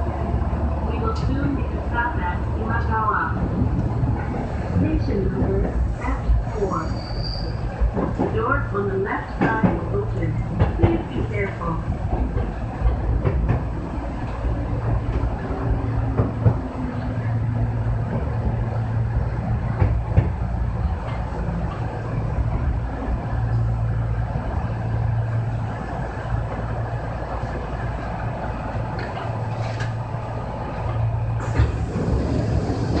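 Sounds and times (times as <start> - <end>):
train interior hum: 0.0 - 33.0.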